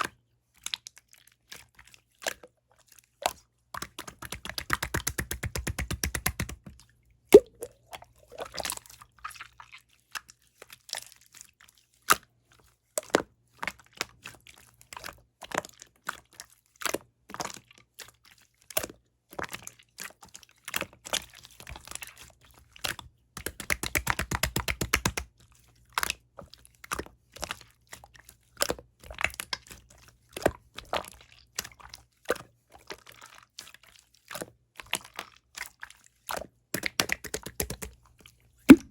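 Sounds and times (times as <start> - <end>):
slime squishing with sticky clicks: 3.3 - 8.7, 38.7 - 38.9.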